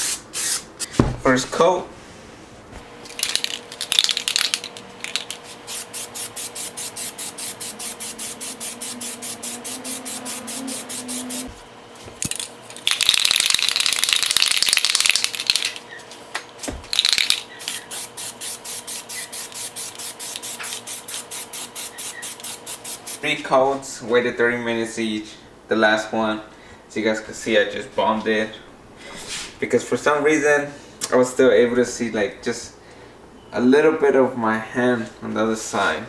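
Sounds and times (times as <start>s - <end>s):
spray can hissing: 0.0s - 0.7s, 3.1s - 11.6s, 12.8s - 15.8s, 16.9s - 23.2s
aerosol can ball rattling: 3.1s - 7.6s, 12.2s - 15.8s, 16.8s - 18.6s.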